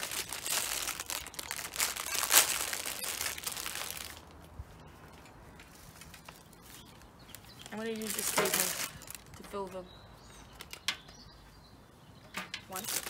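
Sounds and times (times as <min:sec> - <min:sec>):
plastic packet crinkling: 0:00.0 - 0:04.4, 0:05.7 - 0:09.4, 0:12.7 - 0:13.0.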